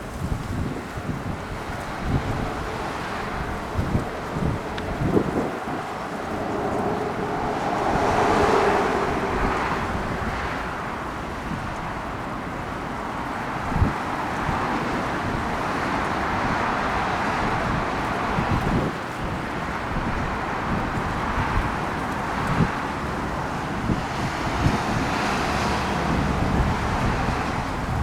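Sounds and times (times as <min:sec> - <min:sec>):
outdoor rush of noise: 0:00.0 - 0:28.0
wind buffeting microphone: 0:00.0 - 0:28.0
low wind thump: 0:01.4 - 0:10.7.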